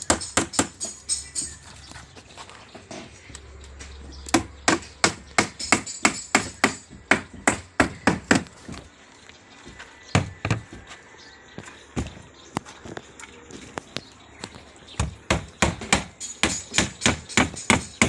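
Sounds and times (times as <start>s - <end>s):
sharp hammering blows: 0.0s - 1.5s, 4.3s - 8.5s, 15.0s - 18.0s.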